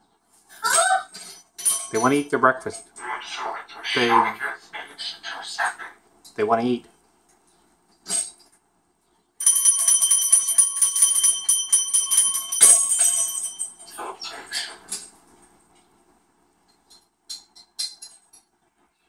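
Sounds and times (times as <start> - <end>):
small bell jingling: 1.6 - 2.4, 9.4 - 14.0.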